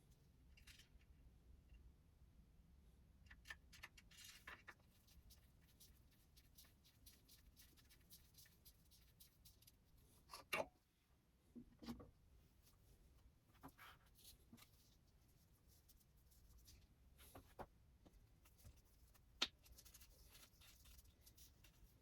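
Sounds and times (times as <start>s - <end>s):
faint clicks and taps: 16.4s - 22.0s.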